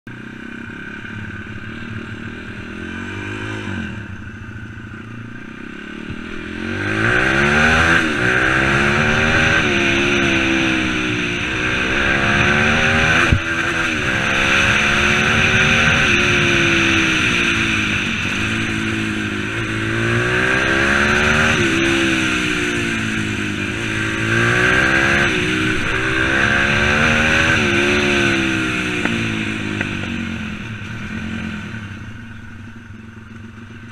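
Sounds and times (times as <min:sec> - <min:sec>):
pit bike engine revving: 0:00.2 - 0:33.9.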